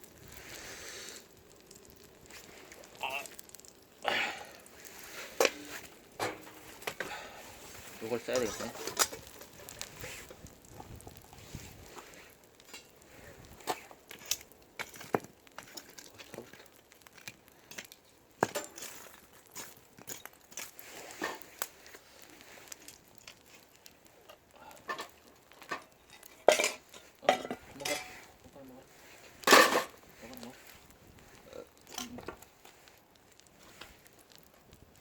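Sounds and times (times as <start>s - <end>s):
eggs frying: 0.0s - 35.0s
utensil scraping frying pan: 5.0s - 10.3s, 25.7s - 28.3s.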